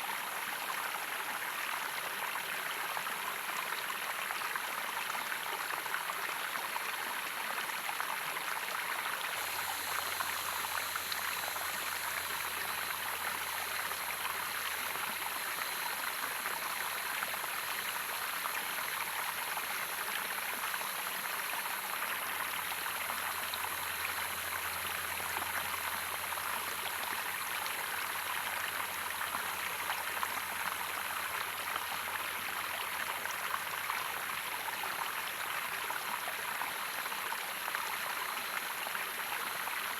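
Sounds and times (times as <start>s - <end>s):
stream water rushing: 9.3s - 37.6s.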